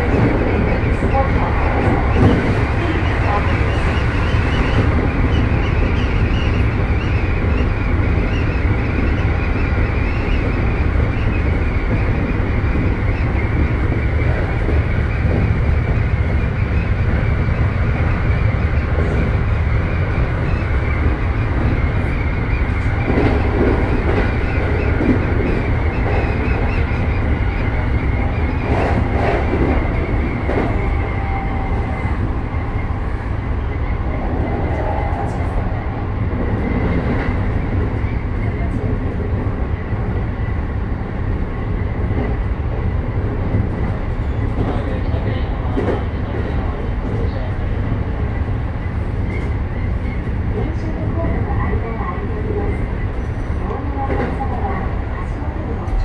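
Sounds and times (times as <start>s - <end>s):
electric train rumbling: 0.0s - 56.0s.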